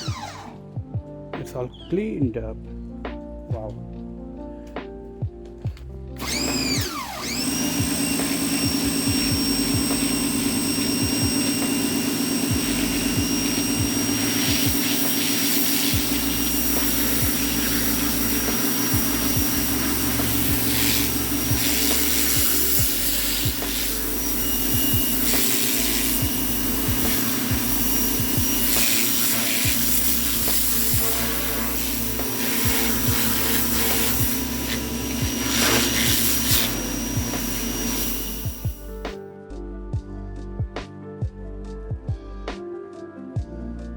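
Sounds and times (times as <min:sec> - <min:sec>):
pressure washer motor humming: 0:00.0 - 0:00.6, 0:06.2 - 0:39.0
water spraying hiss: 0:12.5 - 0:38.8.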